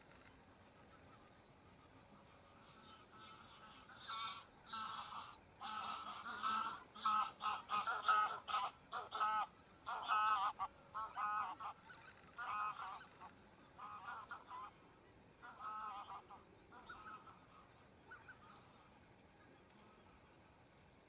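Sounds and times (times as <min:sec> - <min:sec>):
geese honking: 0:00.8 - 0:14.8, 0:15.4 - 0:20.4.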